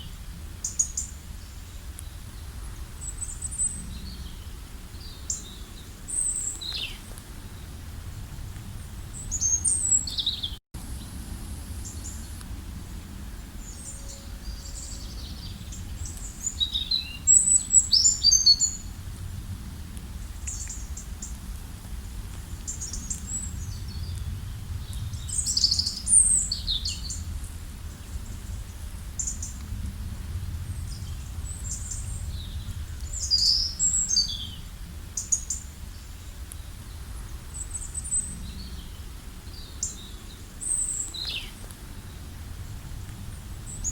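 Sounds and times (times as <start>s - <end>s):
low outdoor rumble: 0.0s - 43.9s
songbirds chirping and trilling: 0.0s - 43.9s.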